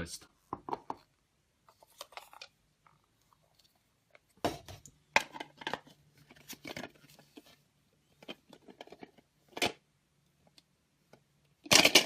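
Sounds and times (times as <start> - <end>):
plastic cups clattering: 4.5 - 7.1, 11.6 - 12.0.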